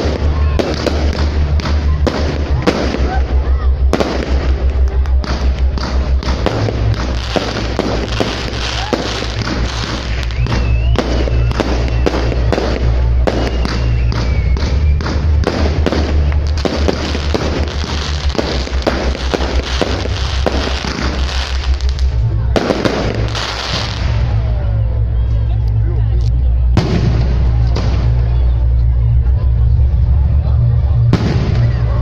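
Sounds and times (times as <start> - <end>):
fireworks bangs and crackling: 0.0 - 25.6, 26.2 - 32.0
firework whistles: 5.9 - 24.2.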